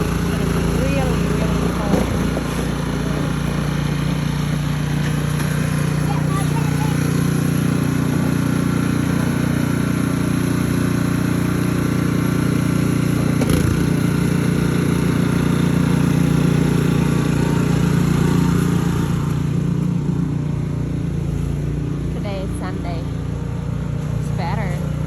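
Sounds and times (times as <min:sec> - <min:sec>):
small engine running: 0:00.0 - 0:25.0.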